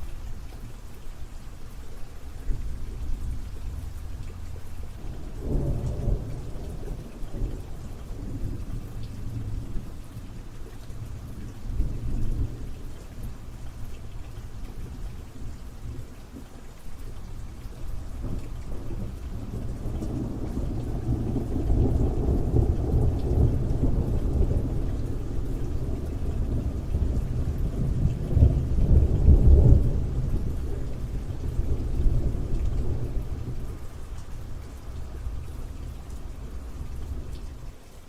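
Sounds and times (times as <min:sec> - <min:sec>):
steady rain: 0:00.0 - 0:38.0
rolling thunder: 0:05.2 - 0:09.8, 0:18.2 - 0:34.0.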